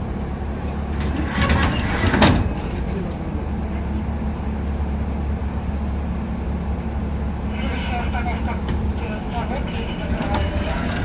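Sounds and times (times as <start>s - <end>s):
tram low rumble: 0.0s - 11.0s
wheels clacking on rails: 6.7s - 11.0s.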